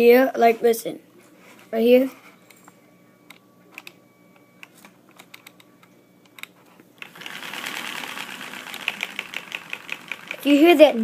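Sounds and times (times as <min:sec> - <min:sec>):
model engine rattling whir: 0:07.0 - 0:11.0.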